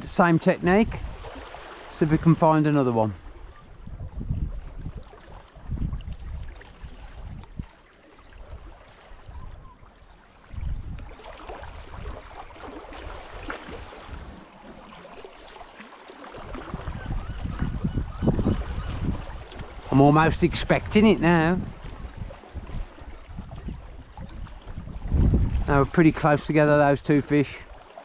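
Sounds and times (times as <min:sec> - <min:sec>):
wind gusts on microphone: 0:00.0 - 0:07.8, 0:08.4 - 0:14.5, 0:16.4 - 0:27.8
water washing and sloshing: 0:00.0 - 0:28.0.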